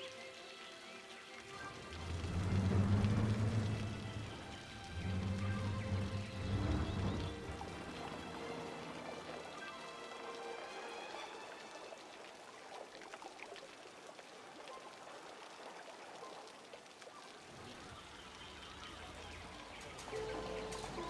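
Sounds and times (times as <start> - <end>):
water trickling and burbling: 0.0 - 21.0
low rumble: 1.6 - 9.5.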